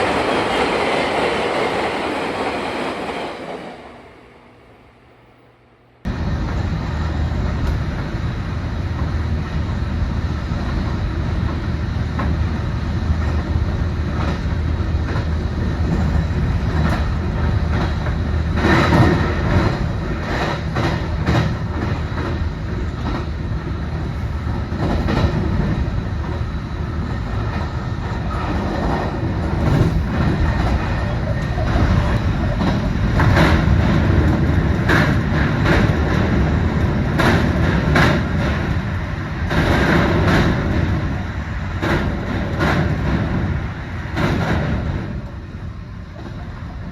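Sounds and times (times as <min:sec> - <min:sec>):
train rumbling on track: 0:00.0 - 0:46.9
wheels clicking over rail joints: 0:27.4 - 0:45.4.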